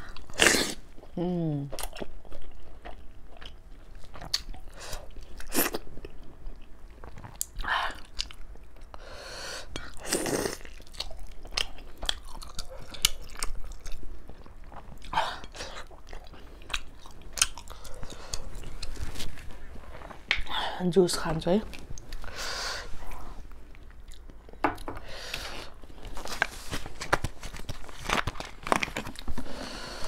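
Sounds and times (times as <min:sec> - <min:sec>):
person chewing food: 0:00.0 - 0:09.0, 0:09.6 - 0:20.5, 0:21.7 - 0:30.0.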